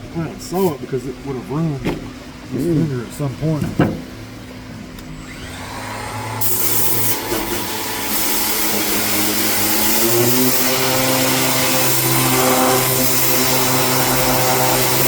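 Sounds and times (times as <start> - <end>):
power sander running: 5.0 - 15.0
abrasive hissing on metal: 6.4 - 15.0.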